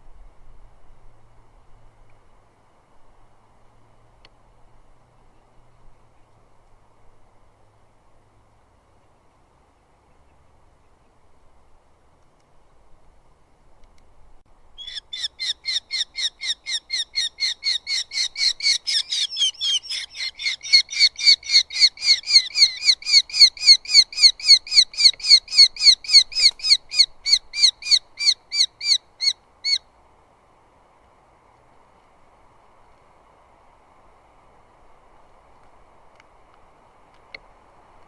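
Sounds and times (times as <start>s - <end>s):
bird calling sharp notes: 14.8s - 29.8s.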